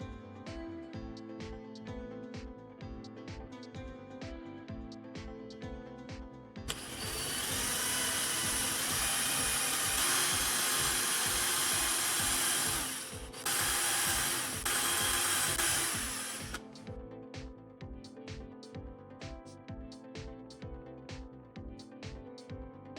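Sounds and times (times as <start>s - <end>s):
background music with beat: 0.0s - 22.9s
power tool hissing: 6.7s - 16.6s.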